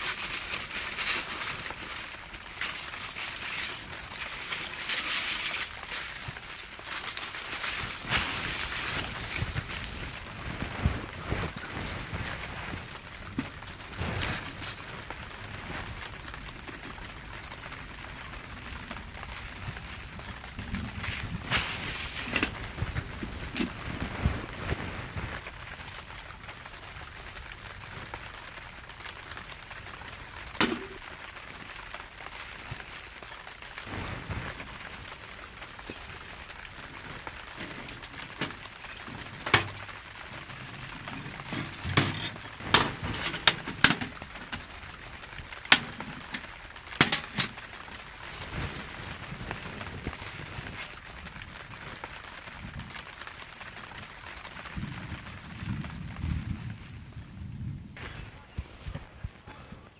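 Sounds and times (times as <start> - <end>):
rain hiss: 0.0 - 58.0
sharp clicks and knocks: 37.6 - 44.7, 45.7 - 47.6.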